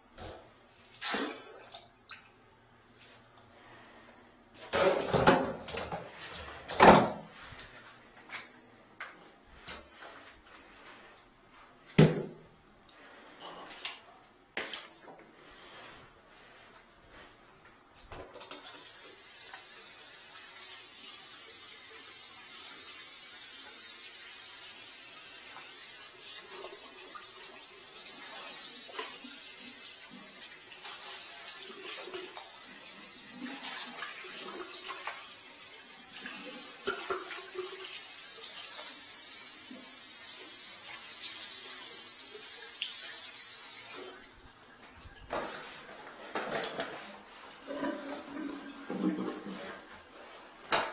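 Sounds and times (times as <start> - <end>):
water running from a tap: 18.6 - 44.4.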